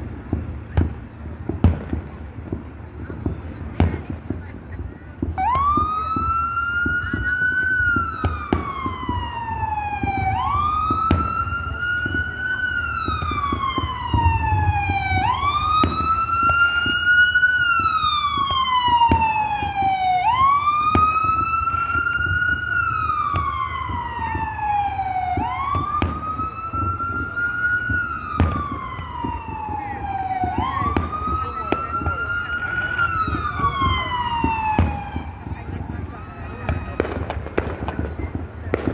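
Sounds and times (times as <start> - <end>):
siren wailing: 5.3 - 38.0.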